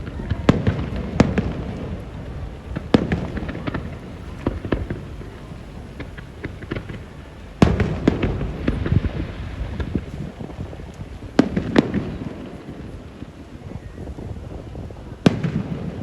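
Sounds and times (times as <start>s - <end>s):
loud firework bang: 0.0s - 12.8s
steady low rumble: 0.0s - 15.2s
firework shells bursting and crackling: 0.0s - 16.0s.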